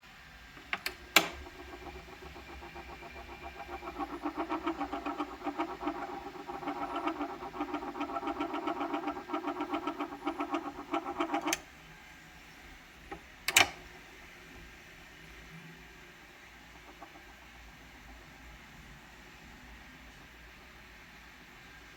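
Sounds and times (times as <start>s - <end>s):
turntable motor pulsing: 0.9s - 11.7s, 16.4s - 19.6s.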